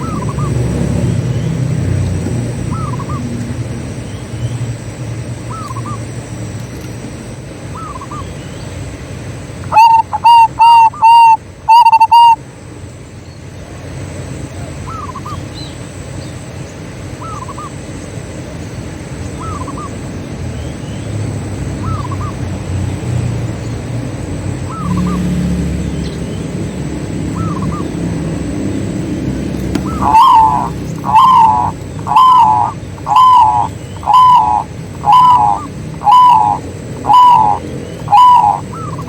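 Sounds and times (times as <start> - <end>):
dove cooing: 0.0 - 3.5, 9.6 - 12.4, 24.6 - 25.8, 27.2 - 39.0
low steady hum: 0.0 - 39.0.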